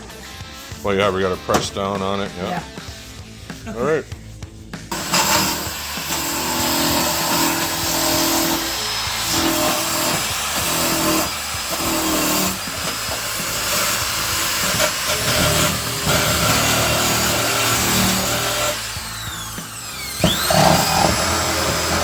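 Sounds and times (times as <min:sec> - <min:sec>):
welding arc crackling hiss: 0:05.0 - 0:19.9.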